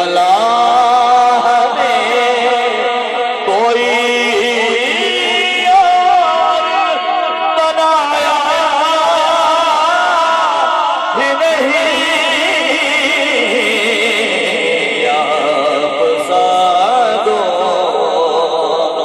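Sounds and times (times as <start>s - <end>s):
man chanting: 0.0s - 19.0s.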